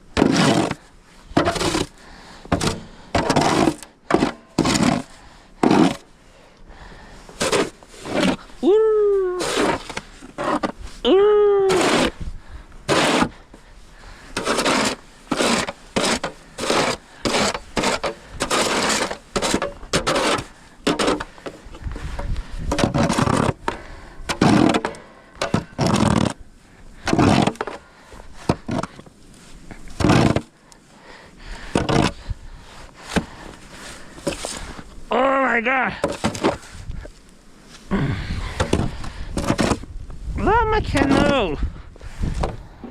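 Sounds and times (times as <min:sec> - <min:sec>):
short scraping strokes: 0:09.4 - 0:11.0, 0:12.9 - 0:13.4, 0:14.3 - 0:23.7.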